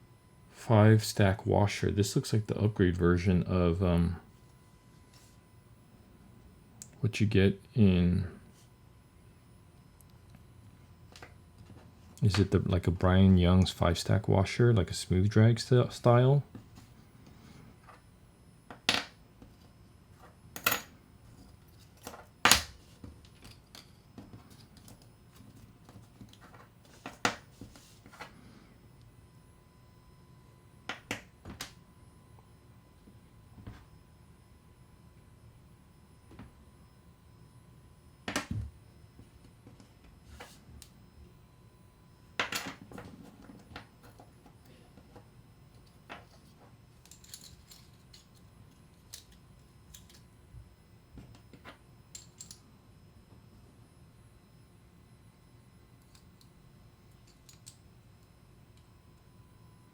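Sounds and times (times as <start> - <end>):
small metal parts clinking: 45.8 - 50.2, 52.2 - 52.6.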